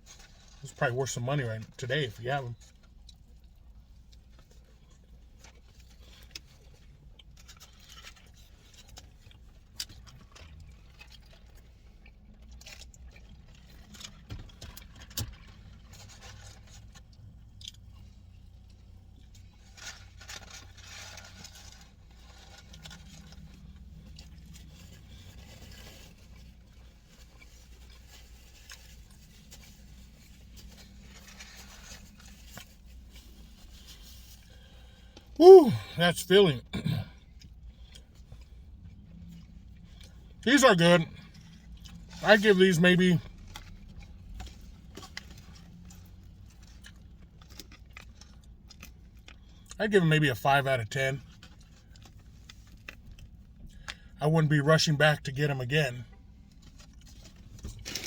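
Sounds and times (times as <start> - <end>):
low background hum: 0.0 - 58.0
chewing: 2.6 - 35.2, 43.3 - 49.8.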